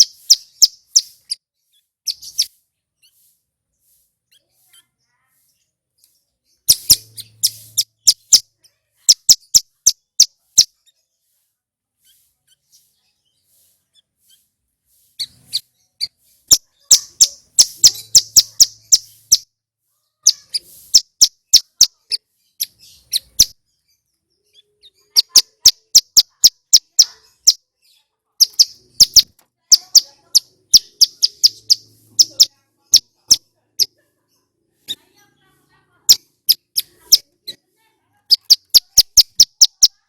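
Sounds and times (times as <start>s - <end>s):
bird singing sharp high notes: 6.6s - 8.5s, 15.2s - 19.5s.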